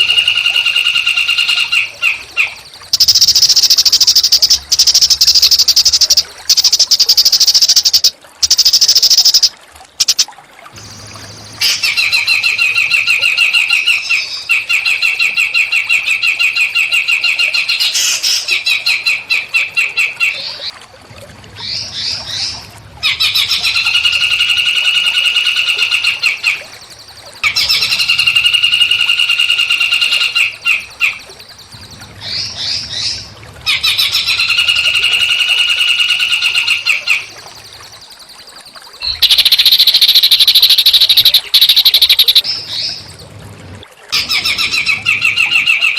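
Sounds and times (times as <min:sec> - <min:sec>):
songbird buzzy trill: 0:00.0 - 0:15.6, 0:33.8 - 0:43.2
hissing high bird call: 0:39.0 - 0:42.5.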